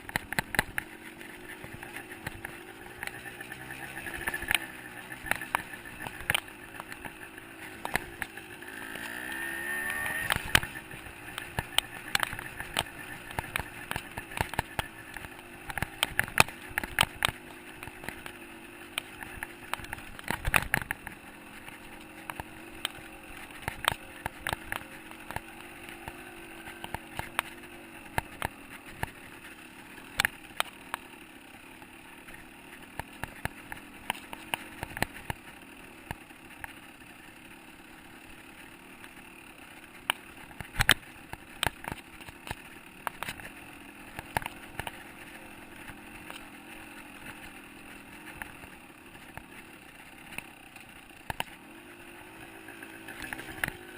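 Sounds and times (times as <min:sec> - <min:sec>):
dirt bike engine running: 0:00.0 - 0:53.9.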